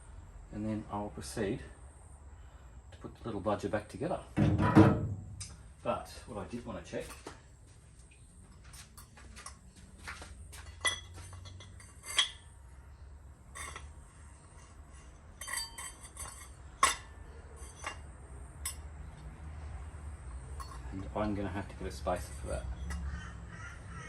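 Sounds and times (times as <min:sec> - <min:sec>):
metal parts clinking: 0:10.6 - 0:12.5, 0:13.5 - 0:18.9, 0:20.5 - 0:21.3.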